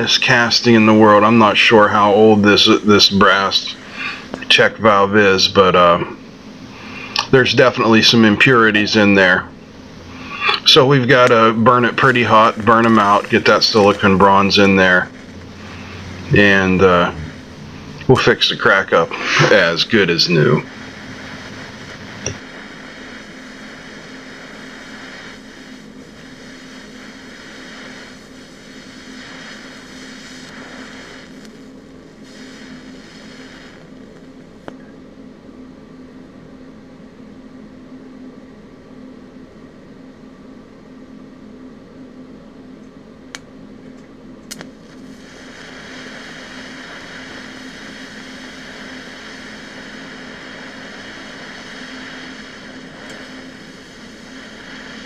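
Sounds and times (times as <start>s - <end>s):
welding arc hiss: 0.0s - 34.9s, 44.4s - 55.0s
electrical hum: 0.0s - 55.0s
welding pops: 10.1s - 17.4s, 20.4s - 34.8s, 44.4s - 55.0s.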